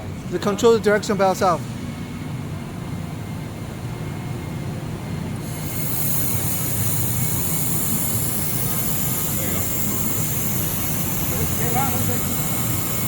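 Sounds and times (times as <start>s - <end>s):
high hiss of welding: 5.4s - 13.0s
laser welder humming: 5.4s - 13.0s.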